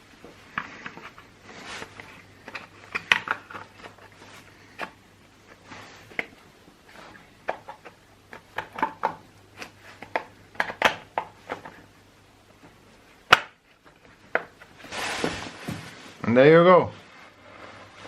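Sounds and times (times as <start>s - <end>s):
plastic parts clicking and knocking: 2.0s - 4.1s, 7.4s - 11.8s.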